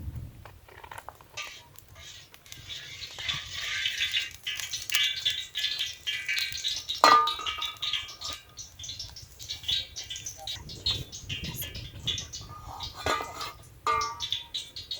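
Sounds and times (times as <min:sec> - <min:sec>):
cookware clattering and scraping: 0:06.3 - 0:08.5, 0:09.5 - 0:14.5.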